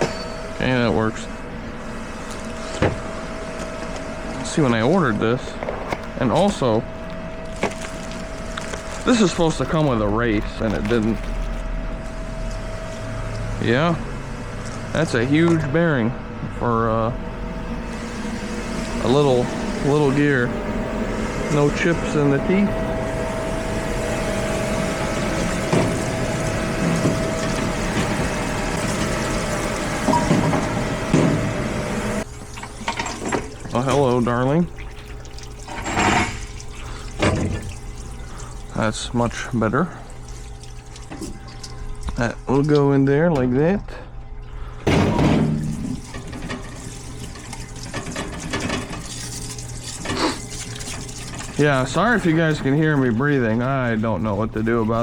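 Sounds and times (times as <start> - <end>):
machine hum with whine: 0.0 - 55.0
fluid pouring and splashing: 6.4 - 11.6, 17.5 - 42.3, 45.4 - 54.4.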